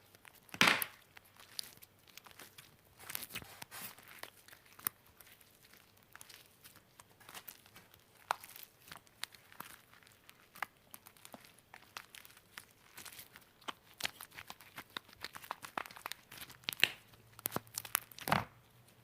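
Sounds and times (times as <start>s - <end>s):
sticky slime clicks and pops: 14.9s - 18.4s.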